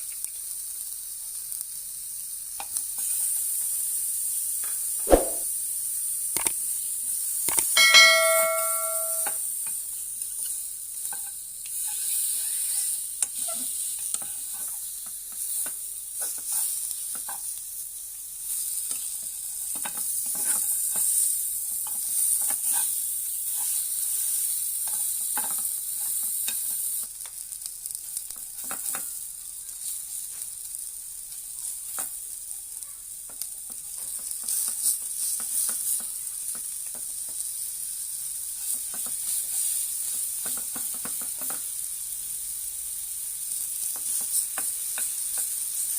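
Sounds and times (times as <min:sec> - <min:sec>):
ribs sizzling in a pan: 0:00.0 - 0:08.0, 0:08.9 - 0:45.9
clicks and scrapes in pan: 0:33.3 - 0:37.4, 0:43.8 - 0:45.6.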